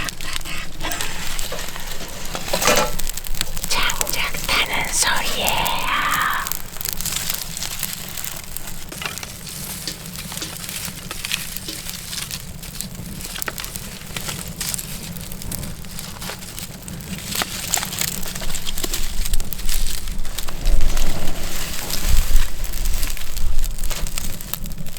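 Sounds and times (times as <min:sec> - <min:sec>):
firewood crackling and popping: 0:00.0 - 0:24.9.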